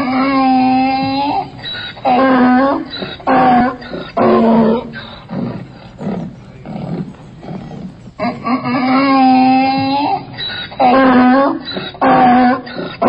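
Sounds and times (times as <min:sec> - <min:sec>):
donkey braying: 0:00.0 - 0:13.0.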